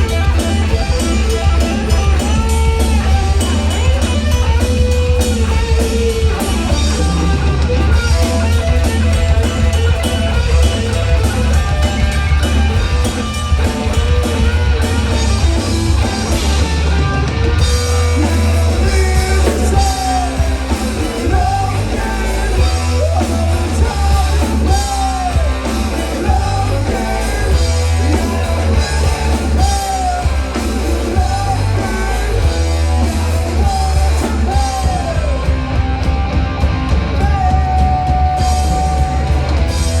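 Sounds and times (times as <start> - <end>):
drum kit: 0.0 - 40.0
electric guitar: 0.0 - 40.0
person singing: 17.9 - 35.7, 37.2 - 39.4.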